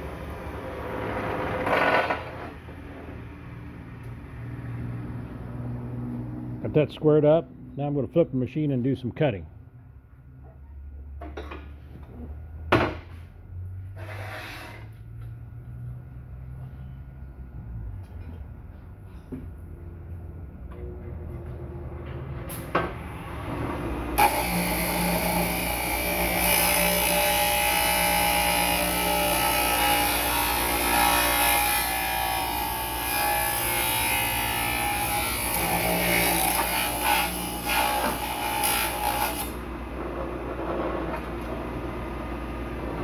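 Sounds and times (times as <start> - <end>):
metal cutter grinding whine: 24.2 - 39.6.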